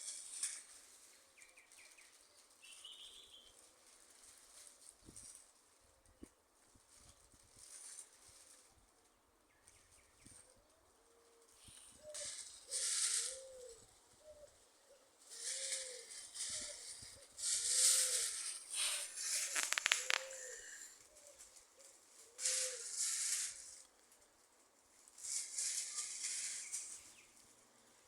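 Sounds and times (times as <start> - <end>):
hissing rustling noise: 0.0 - 5.8, 11.3 - 28.0
dove cooing: 11.1 - 21.4
rattle of clicks: 18.7 - 20.8.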